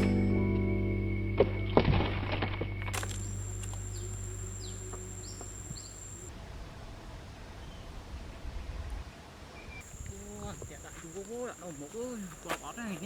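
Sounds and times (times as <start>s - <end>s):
bird chirps: 2.6s - 6.3s
low wind rumble: 2.7s - 11.1s
high insect buzz: 2.9s - 6.3s, 9.8s - 13.0s.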